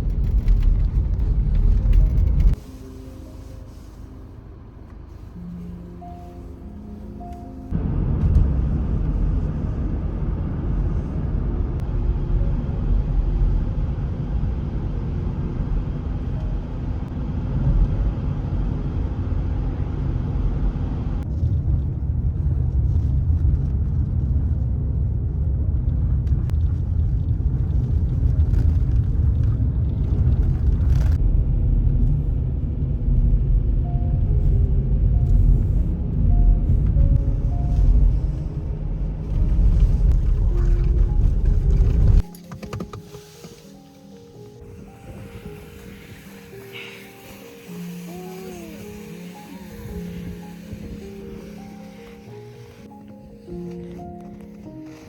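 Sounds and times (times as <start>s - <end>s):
low rumble: 0.0s - 55.0s
light hiss: 42.4s - 55.0s.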